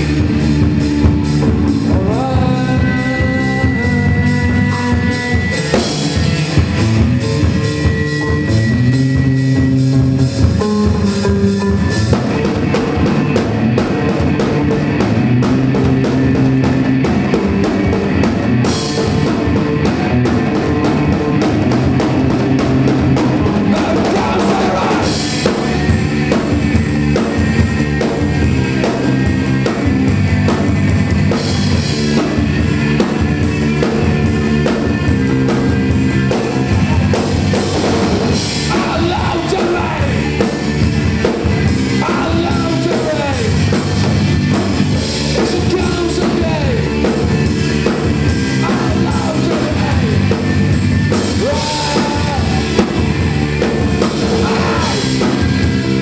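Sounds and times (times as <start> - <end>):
drum kit beat: 0.0 - 56.0
rock band playing live: 0.0 - 56.0.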